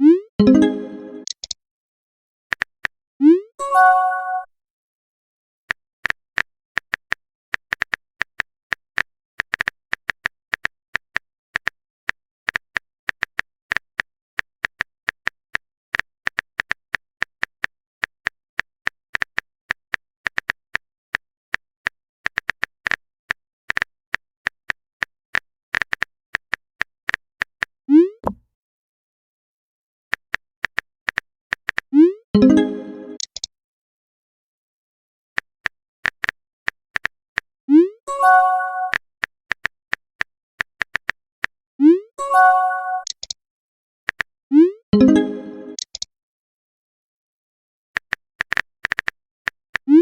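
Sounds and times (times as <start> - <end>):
rising notification pop: 0.0 - 1.3, 32.4 - 33.2, 45.0 - 45.8
keyboard typing clicks: 0.0 - 1.6, 32.4 - 33.5, 42.8 - 43.4, 45.0 - 46.1.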